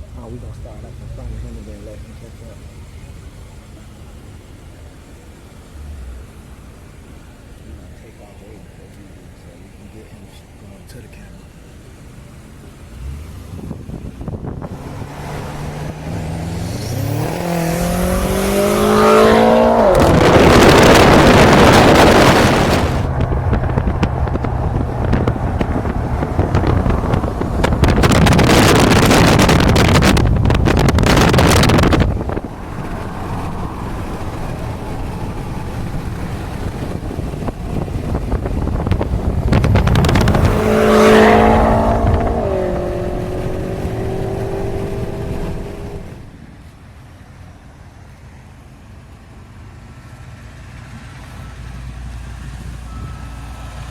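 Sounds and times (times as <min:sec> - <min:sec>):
car engine revving under hard pulls: 0:12.0 - 0:46.4
wind noise on microphone: 0:13.0 - 0:46.5
loud rushing: 0:13.6 - 0:46.3.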